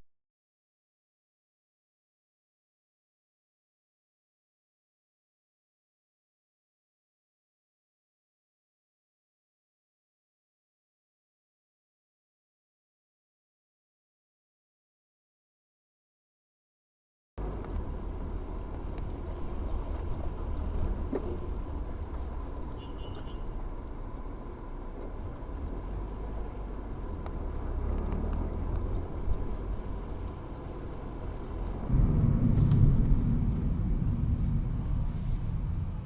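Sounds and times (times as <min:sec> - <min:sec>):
vehicle road and engine rumble: 0:17.4 - 0:36.0.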